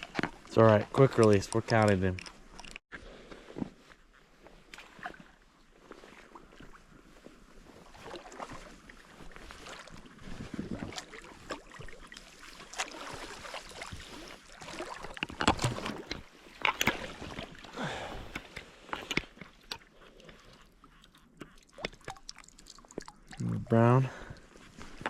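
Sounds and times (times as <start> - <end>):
wet handling splashes and squelches: 7.8 - 25.0.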